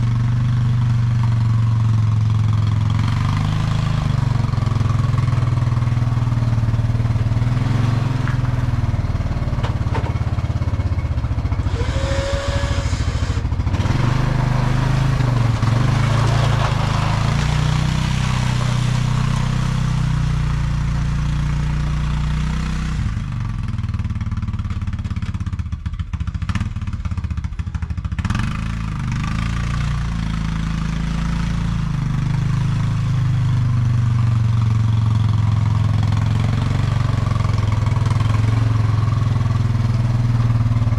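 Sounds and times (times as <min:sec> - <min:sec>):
atv engine under load: 0:00.0 - 0:40.9
rushing noise: 0:11.6 - 0:16.1.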